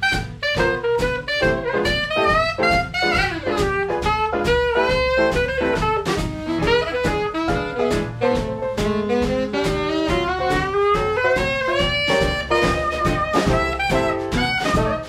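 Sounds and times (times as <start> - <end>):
instrumental swing jazz band: 0.0 - 15.0.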